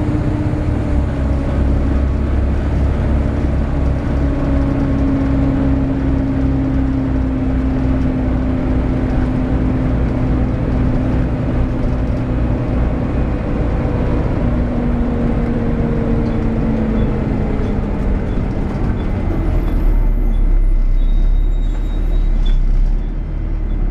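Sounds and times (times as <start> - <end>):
bus cooling fan whine: 0.0 - 20.2
deep engine rumble: 0.0 - 23.9.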